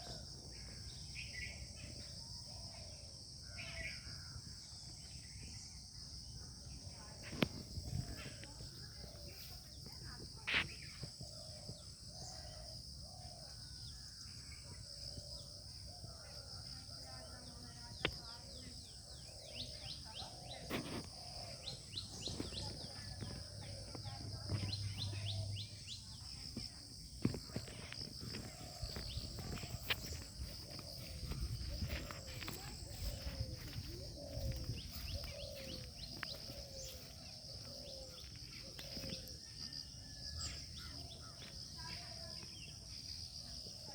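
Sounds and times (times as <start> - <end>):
high insect drone: 7.2 - 43.9
bird chirps: 17.9 - 43.6.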